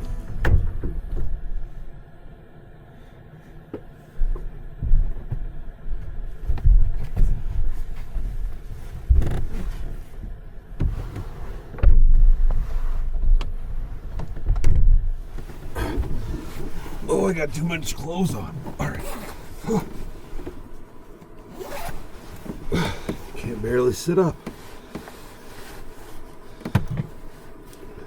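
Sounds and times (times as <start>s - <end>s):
thumps and knocks in truck: 0.1s - 1.4s, 26.6s - 27.2s.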